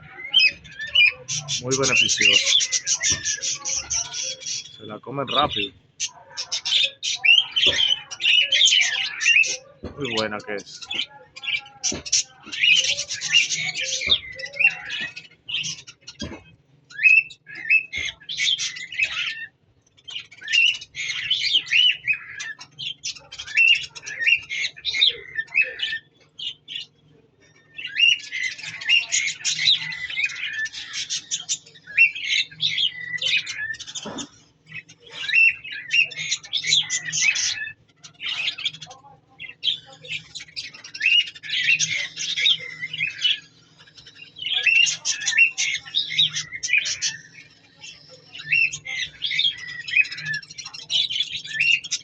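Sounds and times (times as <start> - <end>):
budgerigars chirping: 0.0 - 26.9, 27.8 - 52.0.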